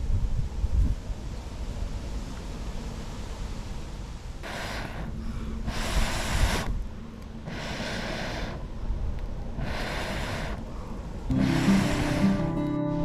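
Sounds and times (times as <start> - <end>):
wind rumble on microphone: 0.0 - 12.2
long breath sounds: 4.4 - 12.7.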